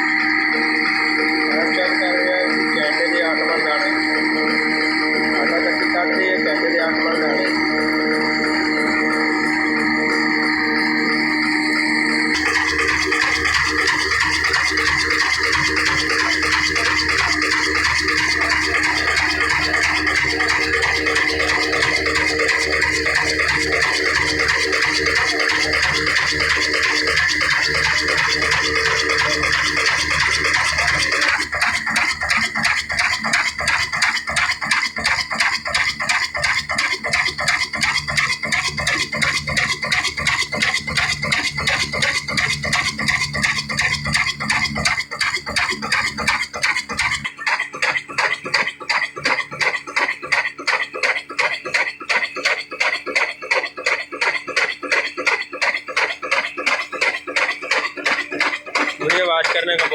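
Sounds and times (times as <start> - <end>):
diesel engine deep rumble: 0.0 - 47.3
flour mill rhythmic clatter: 0.0 - 59.9.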